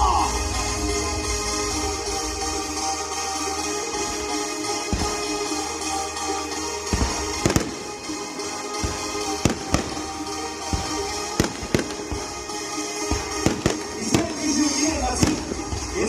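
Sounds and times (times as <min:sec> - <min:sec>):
music: 0:00.0 - 0:16.0
fireworks bangs: 0:04.0 - 0:05.7, 0:06.8 - 0:16.0.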